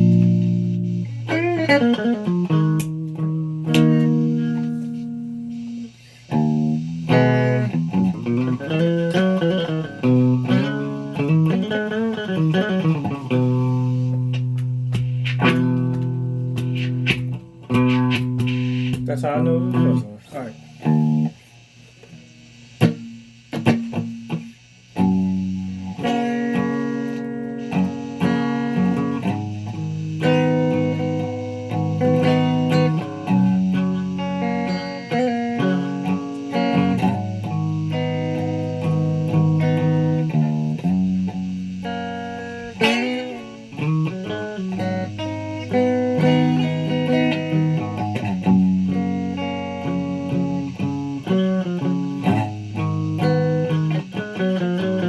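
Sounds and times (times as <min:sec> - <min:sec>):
guitar picked notes and chords: 0:00.0 - 0:55.0.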